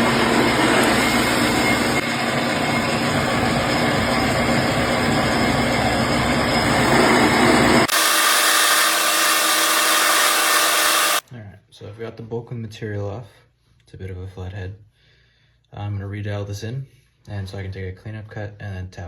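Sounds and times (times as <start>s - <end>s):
metal lathe machining: 0.0s - 11.2s.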